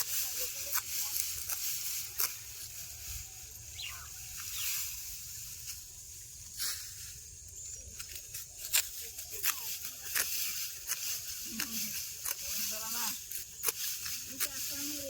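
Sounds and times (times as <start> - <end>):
dry straw rustling and crunching: 0.0 - 15.0
steady high hiss: 0.2 - 7.8.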